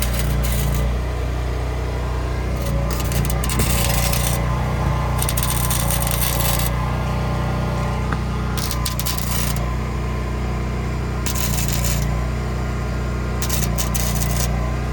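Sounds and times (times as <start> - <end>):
welding arc crackling: 0.0 - 1.1, 2.4 - 7.1, 8.1 - 9.8, 11.2 - 12.3, 13.4 - 14.9
steady low hum: 0.0 - 12.6.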